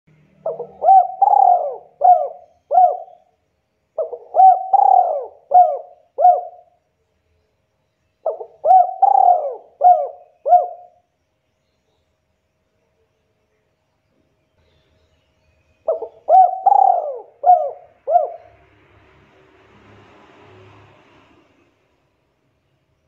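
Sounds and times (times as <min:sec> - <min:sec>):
dove cooing: 0:00.4 - 0:03.3, 0:04.0 - 0:06.7, 0:08.2 - 0:11.0, 0:15.9 - 0:18.6.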